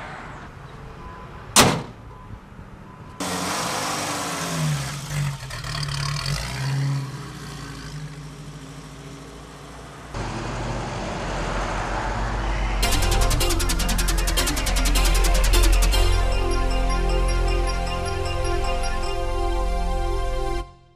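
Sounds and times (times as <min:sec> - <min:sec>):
car engine revving: 0:03.2 - 0:16.1.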